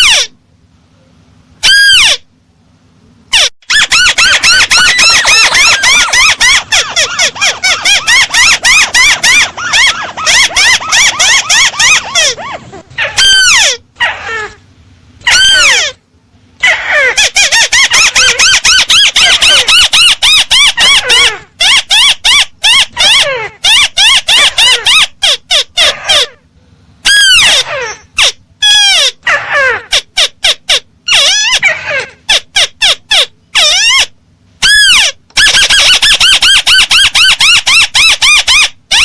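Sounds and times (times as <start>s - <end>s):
crake squealing trills: 1.6s - 2.3s, 3.3s - 14.6s, 15.2s - 16.0s, 16.6s - 26.4s, 27.0s - 39.0s
downward-sliding bird calls: 3.3s - 14.6s.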